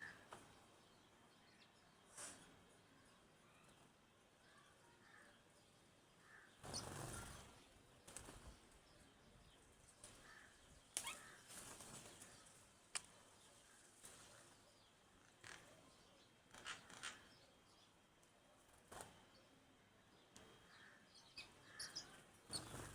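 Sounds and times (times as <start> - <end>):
soft bird chirps: 6.2 - 18.0, 19.0 - 22.9
bird wings fluttering: 11.0 - 12.5, 22.6 - 22.9
birds pecking clicks: 12.9 - 13.1.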